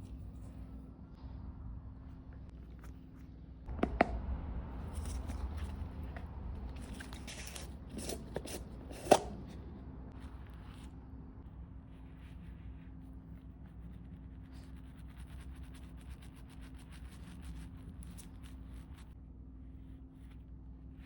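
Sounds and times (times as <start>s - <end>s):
rubbing and scraping silver ladle: 4.8s - 9.6s.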